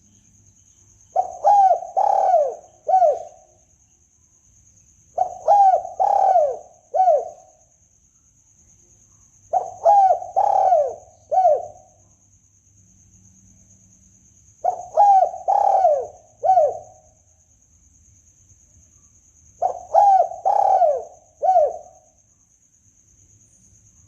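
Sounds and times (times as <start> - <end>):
dove cooing: 1.1 - 3.5, 5.2 - 7.6, 9.5 - 11.9, 14.6 - 17.0, 19.6 - 22.0.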